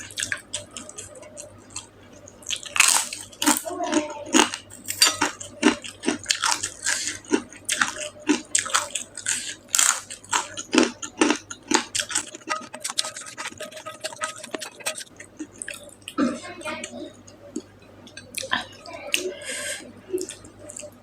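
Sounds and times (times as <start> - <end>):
chewing and biting food: 0.0 - 16.2.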